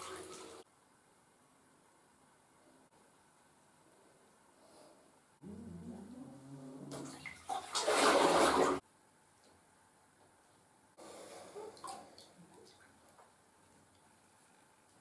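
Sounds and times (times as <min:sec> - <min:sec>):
water gushing: 0:00.0 - 0:00.6, 0:06.8 - 0:08.8.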